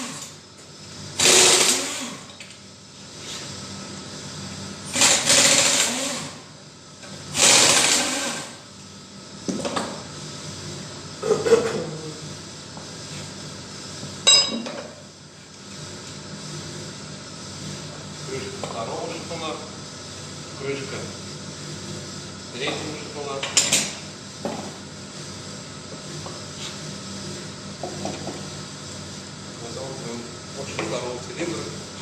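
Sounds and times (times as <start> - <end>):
power tool spinning out bolts: 1.2 - 2.3, 4.9 - 6.3, 7.3 - 8.6
metallic clink of tool set down: 14.3 - 14.9.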